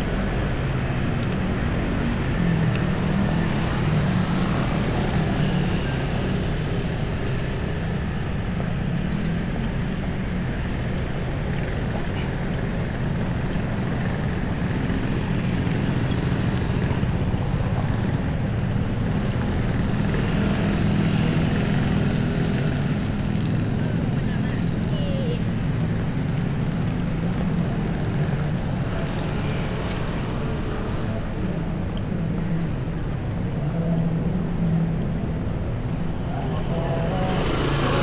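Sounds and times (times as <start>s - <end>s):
street traffic: 0.0s - 38.0s.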